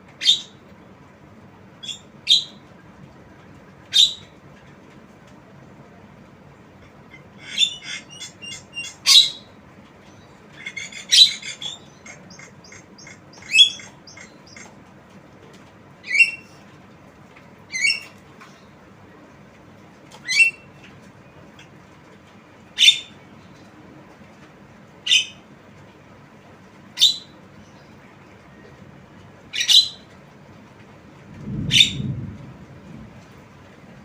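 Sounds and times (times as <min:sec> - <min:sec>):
myna bird calling: 0:01.8 - 0:02.6, 0:03.9 - 0:04.4, 0:06.8 - 0:14.8, 0:16.0 - 0:16.6, 0:17.7 - 0:18.8, 0:29.5 - 0:30.1.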